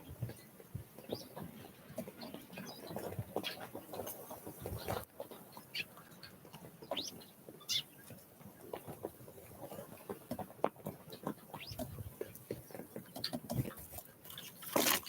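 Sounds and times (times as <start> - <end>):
songbirds chirping: 0.0 - 14.8.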